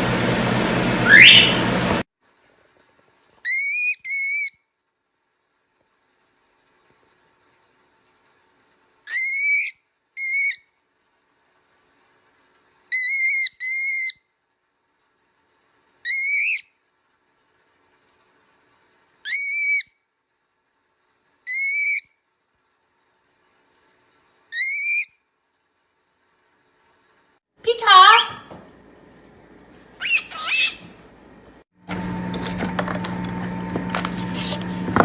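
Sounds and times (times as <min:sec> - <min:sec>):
parrot whistling calls: 0:01.0 - 0:01.8, 0:03.5 - 0:04.6, 0:09.1 - 0:10.7, 0:12.9 - 0:14.2, 0:16.0 - 0:16.7, 0:19.2 - 0:20.0, 0:21.4 - 0:22.1, 0:24.5 - 0:25.2, 0:30.0 - 0:30.9.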